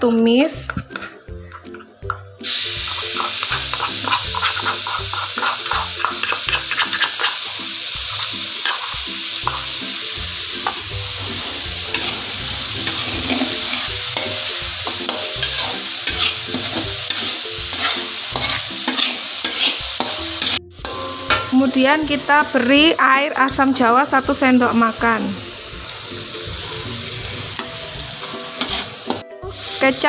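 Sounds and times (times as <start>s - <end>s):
metal spoon scraping a pan: 0.7s - 2.2s, 2.8s - 22.3s, 26.3s - 29.2s
paste sizzling in hot oil: 2.4s - 30.0s.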